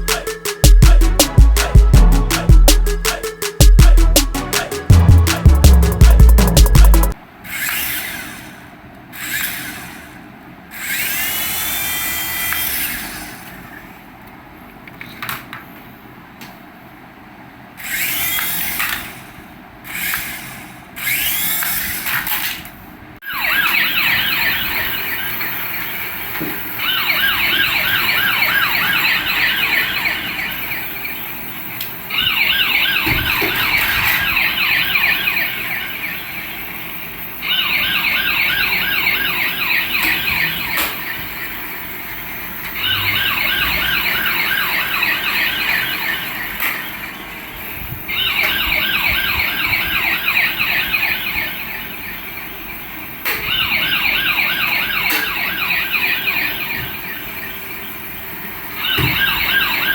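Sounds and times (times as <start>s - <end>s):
toy electronic siren warbling: 0.0s - 4.9s, 23.2s - 59.9s.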